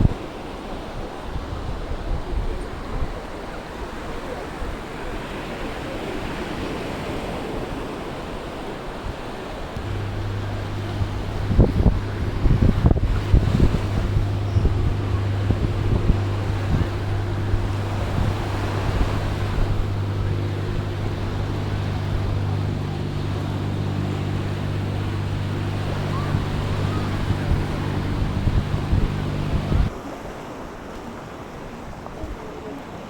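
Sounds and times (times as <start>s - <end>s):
low engine hum: 9.8s - 29.9s
wind buffeting microphone: 9.8s - 29.9s
surf: 9.8s - 33.0s.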